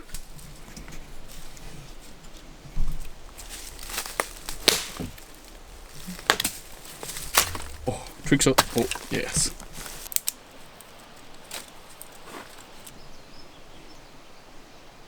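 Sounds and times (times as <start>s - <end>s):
firewood sticks snapping: 3.0s - 12.9s.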